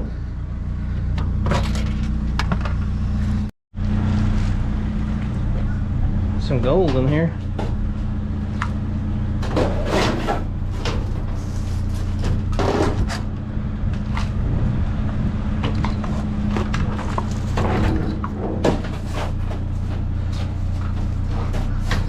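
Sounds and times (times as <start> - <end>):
low engine hum: 0.0 - 22.0
junk rummaged in a dumpster: 9.3 - 14.4, 15.6 - 22.0.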